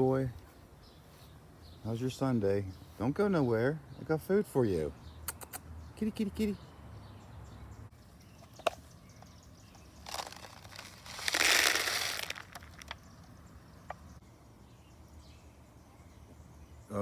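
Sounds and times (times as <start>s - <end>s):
bag crinkling and rustling: 10.0s - 13.0s.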